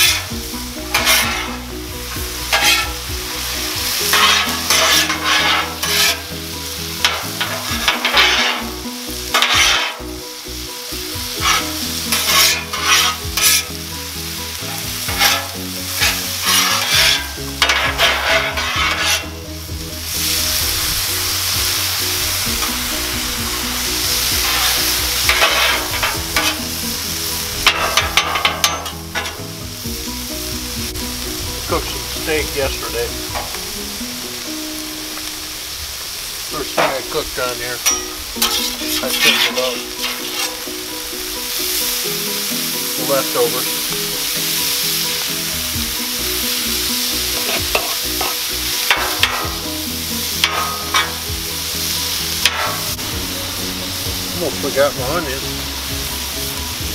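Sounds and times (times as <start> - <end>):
metal spatulas scraping: 0.0 - 3.1, 3.9 - 6.4, 7.0 - 10.2, 11.3 - 13.8, 14.5 - 19.5, 22.4 - 27.0, 27.6 - 29.6, 36.6 - 37.2, 37.8 - 42.2, 46.2 - 53.2
vegetables sizzling on griddle: 0.0 - 56.9.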